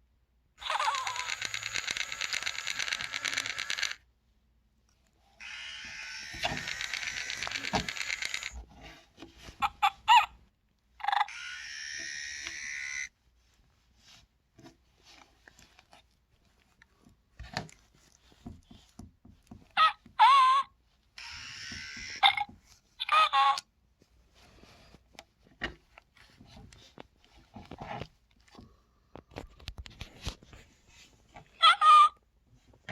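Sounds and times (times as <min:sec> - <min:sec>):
toy chirps: 0:00.6 - 0:04.0, 0:05.4 - 0:08.6, 0:11.0 - 0:13.1
toy handling clicks and knocks: 0:00.6 - 0:04.0, 0:05.4 - 0:09.8, 0:11.0 - 0:13.1, 0:21.2 - 0:23.7
toy scratchy chattering: 0:00.6 - 0:04.0, 0:05.4 - 0:08.6, 0:11.0 - 0:13.1, 0:19.8 - 0:23.6.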